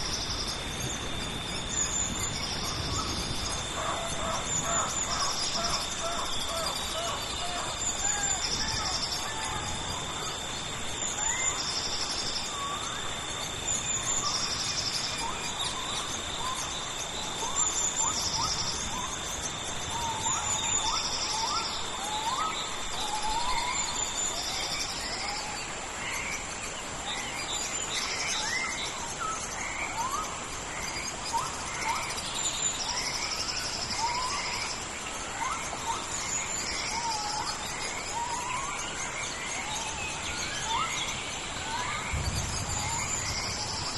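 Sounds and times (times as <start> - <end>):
birds whistling calls: 0.0 - 13.0, 27.1 - 43.9
insect pulsed trills: 0.0 - 43.9
insects buzzing: 0.0 - 43.9
steady hiss: 0.0 - 43.9.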